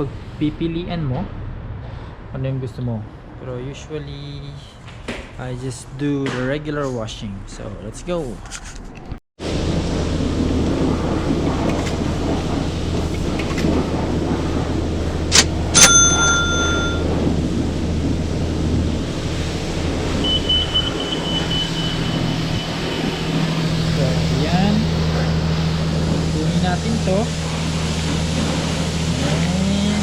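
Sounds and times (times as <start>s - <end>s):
car wash equipment humming: 0.0s - 8.4s, 9.4s - 30.0s
metallic ringing tone: 15.7s - 17.2s
faint high whine: 19.3s - 30.0s.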